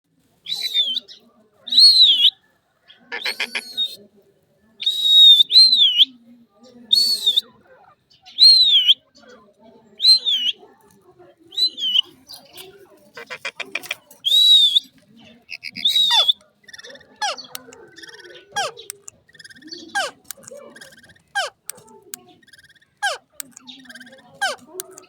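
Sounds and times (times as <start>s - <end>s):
parrot whistling calls: 15.5s - 21.7s, 22.4s - 25.0s
parrot harsh buzzing call: 15.5s - 21.8s, 22.4s - 25.0s.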